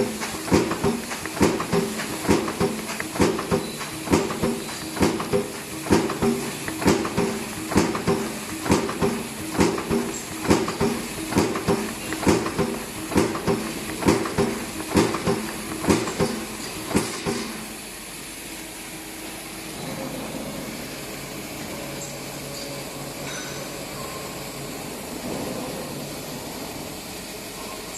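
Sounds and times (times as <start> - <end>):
machine knocking: 0.0 - 17.8
machine running hum and hiss: 0.0 - 27.9.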